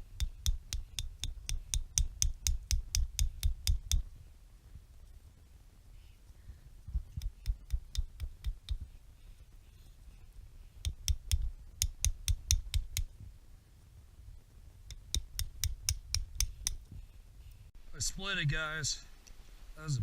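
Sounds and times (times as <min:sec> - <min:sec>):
log pounding on log: 0:00.0 - 0:04.1, 0:07.0 - 0:08.8, 0:10.8 - 0:13.1, 0:14.9 - 0:16.8.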